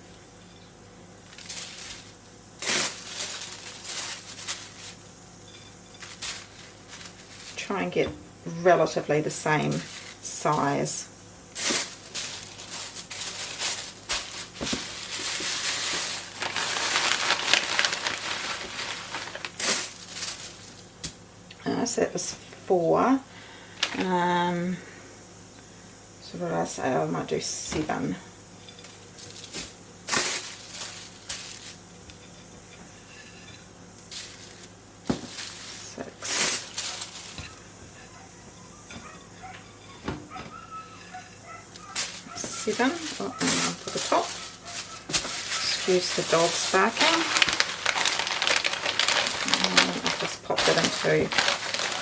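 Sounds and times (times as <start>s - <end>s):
paper crinkling and rustling: 1.3s - 5.0s, 11.6s - 20.9s, 29.2s - 31.8s, 34.1s - 37.7s, 40.5s - 52.0s.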